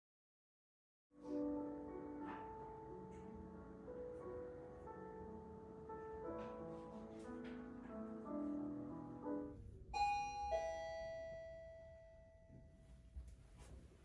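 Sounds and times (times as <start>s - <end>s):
soft piano music: 1.1s - 13.0s
two-note ding-dong chime: 10.0s - 12.8s.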